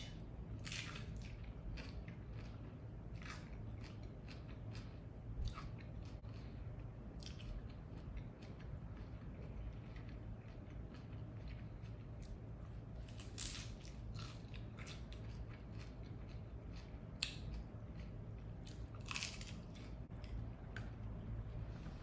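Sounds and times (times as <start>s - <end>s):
crunching and chewing crisp shell: 0.0s - 21.3s.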